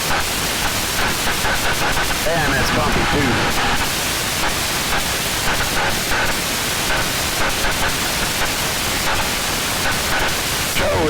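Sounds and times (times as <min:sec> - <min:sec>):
aircraft cabin engine noise: 0:02.1 - 0:04.0.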